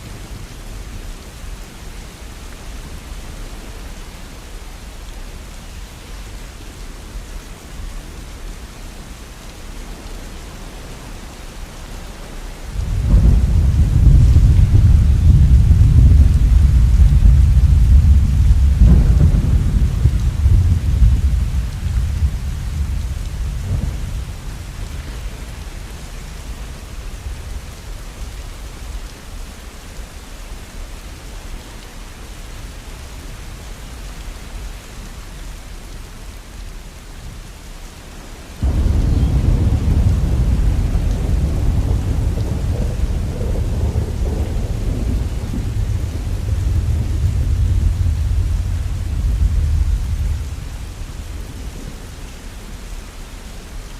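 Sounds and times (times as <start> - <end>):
steady rain: 0.0 - 53.9
rolling thunder: 12.7 - 28.0, 38.6 - 52.2.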